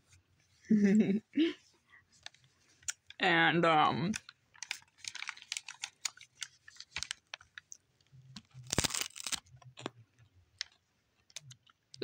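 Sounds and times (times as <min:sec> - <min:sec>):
crunchy snack being chewed: 0:08.4 - 0:10.0.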